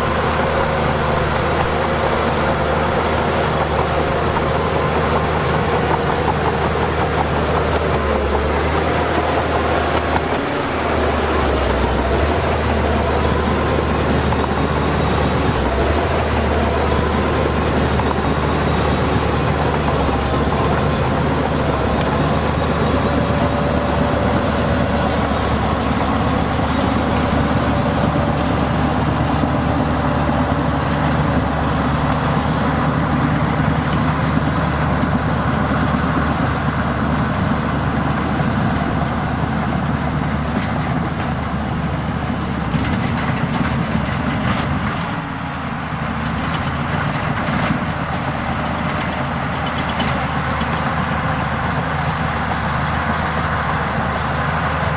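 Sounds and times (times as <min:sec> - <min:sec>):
heavy diesel machinery running: 0:00.0 - 0:54.9.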